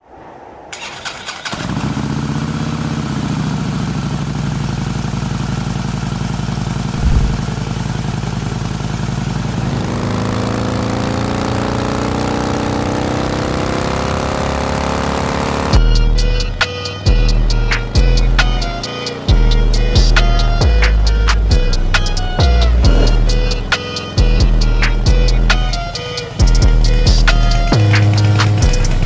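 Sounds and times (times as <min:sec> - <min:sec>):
motorcycle engine starting and idling: 0:00.7 - 0:10.7
low thump: 0:07.0 - 0:07.6.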